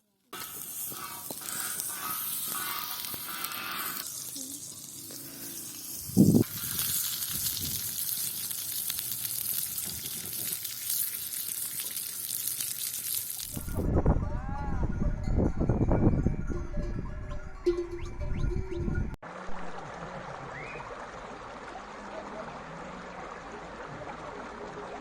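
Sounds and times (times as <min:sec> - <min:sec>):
sausage sizzling in a pan: 0:00.3 - 0:13.8.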